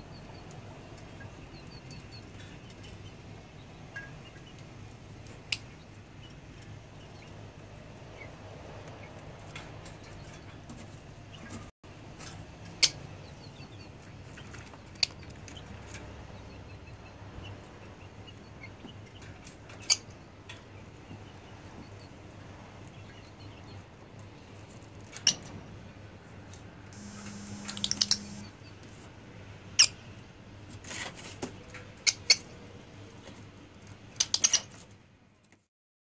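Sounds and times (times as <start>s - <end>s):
steady low hum: 27.0s - 28.6s.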